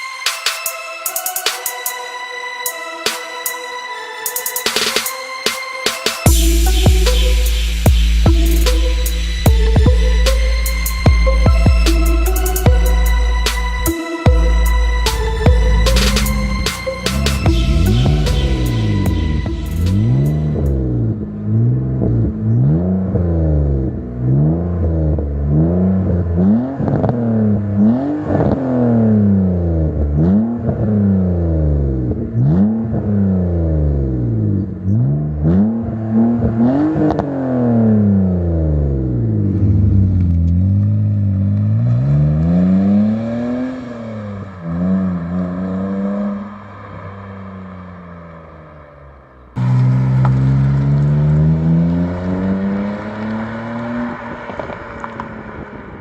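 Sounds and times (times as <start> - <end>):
car engine revving: 4.4 - 56.0
exhaust pops: 49.6 - 51.8.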